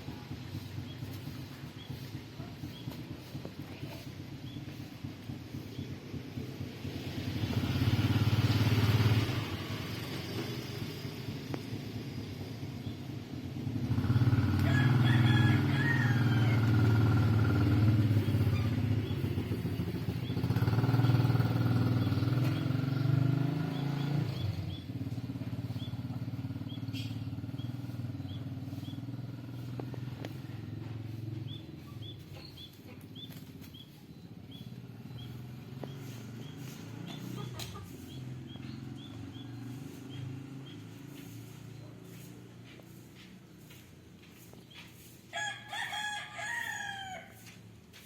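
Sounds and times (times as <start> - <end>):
motor engine running: 0.0 - 45.2
bird chirping: 25.6 - 29.7.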